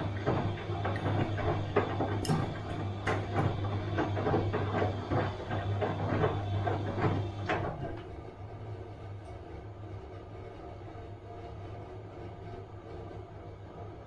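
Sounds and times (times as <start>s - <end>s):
washing machine motor hum: 0.0s - 14.0s.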